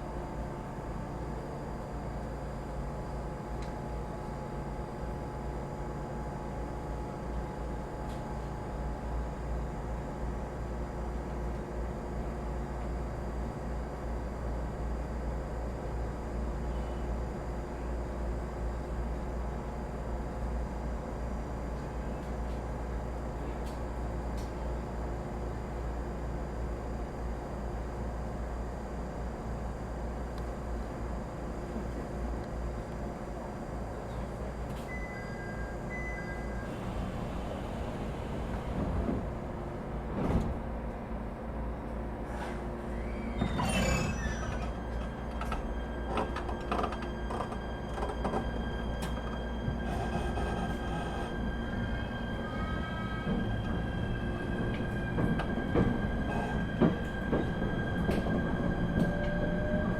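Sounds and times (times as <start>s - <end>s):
train equipment hum: 0.0s - 59.9s
train wheels rumbling on rails: 36.6s - 59.9s.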